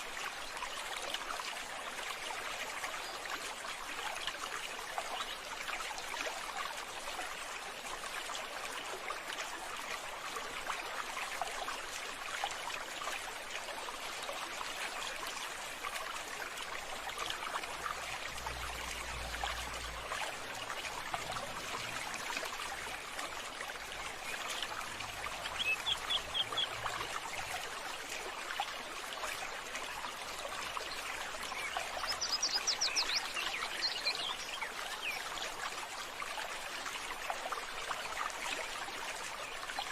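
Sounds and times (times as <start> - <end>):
water trickling: 0.0 - 39.9
birds calling: 25.6 - 26.8.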